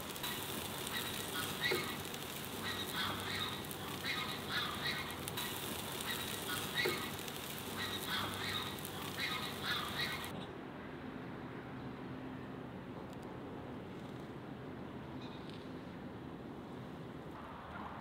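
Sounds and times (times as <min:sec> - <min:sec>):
steady hiss: 0:00.0 - 0:10.3
short bird calls: 0:00.8 - 0:10.3.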